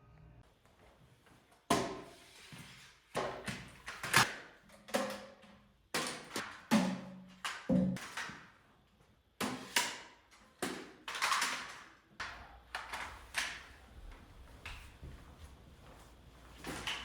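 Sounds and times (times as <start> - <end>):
wooden workpieces knocking: 7.7 - 8.0.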